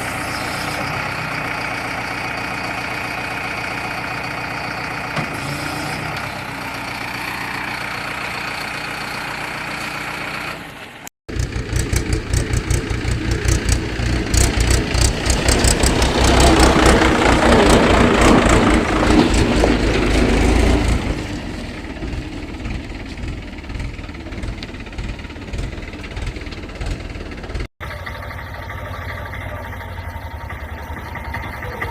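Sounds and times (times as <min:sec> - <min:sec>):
tractor engine droning: 0:00.0 - 0:31.9
engine chugging rapidly: 0:11.3 - 0:31.9.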